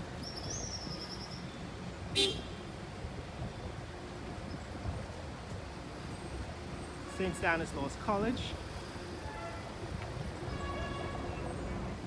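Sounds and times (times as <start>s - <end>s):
street traffic rumbling: 0.0s - 12.0s
car horn toot: 2.2s - 2.6s, 10.5s - 11.7s.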